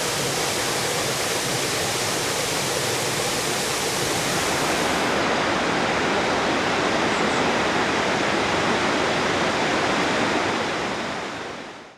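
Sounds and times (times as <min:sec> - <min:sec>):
waterfall rushing: 0:00.0 - 0:05.6.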